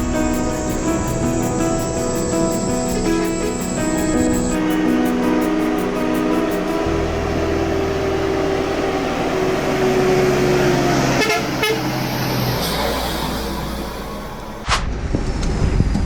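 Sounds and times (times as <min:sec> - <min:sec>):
truck engine droning: 0:00.0 - 0:14.6
horn-like tone: 0:07.2 - 0:11.9.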